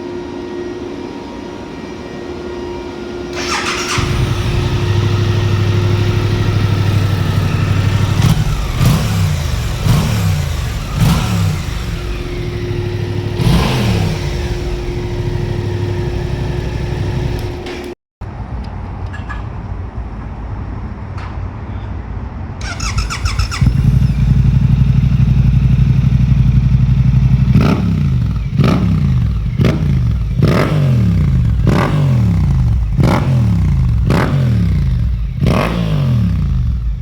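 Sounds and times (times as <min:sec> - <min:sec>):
motorcycle engine idling and revving: 0:03.3 - 0:18.0, 0:22.6 - 0:37.0
engine rattle: 0:03.4 - 0:17.9, 0:22.6 - 0:35.7.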